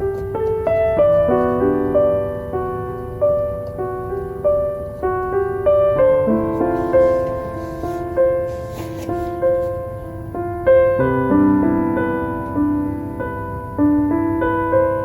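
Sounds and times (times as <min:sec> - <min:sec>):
faint crackles: 0:00.0 - 0:09.9
faint low hiss: 0:00.0 - 0:15.0
slow solo piano: 0:00.0 - 0:15.0.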